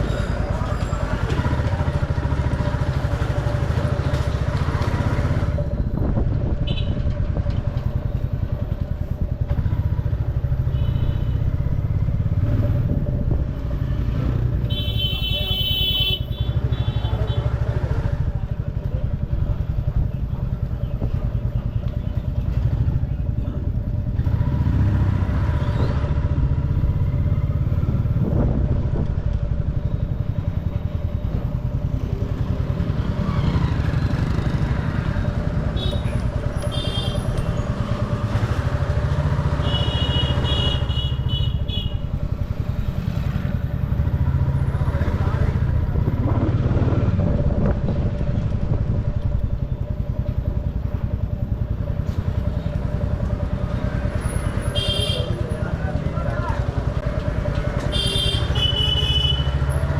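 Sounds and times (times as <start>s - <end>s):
motorcycle engine rumbling: 0.0s - 59.9s
street traffic: 0.0s - 59.9s
high vehicle horn beeping: 14.6s - 17.4s, 35.7s - 37.4s, 39.5s - 42.2s, 54.6s - 55.5s, 57.8s - 59.7s.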